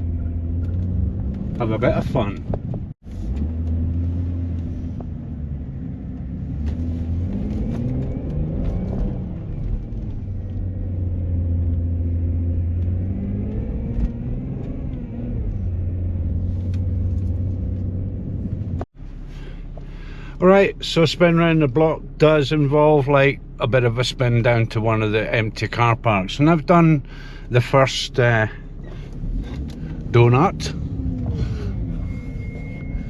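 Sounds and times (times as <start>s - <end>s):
car engine revving: 0.0s - 25.7s, 26.3s - 33.0s.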